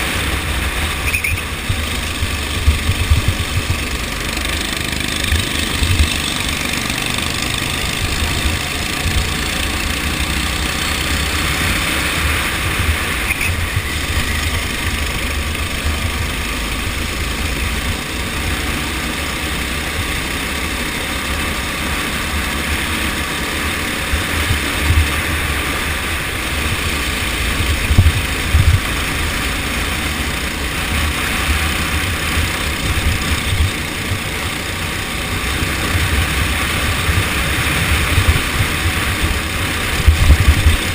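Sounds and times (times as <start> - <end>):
uneven low rumble: 0.0 - 4.3
go-kart engine running: 0.0 - 40.9.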